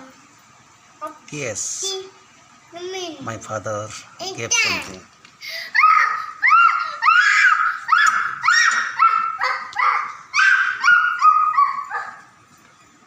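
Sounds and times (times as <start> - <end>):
animal yelping: 5.8 - 12.3.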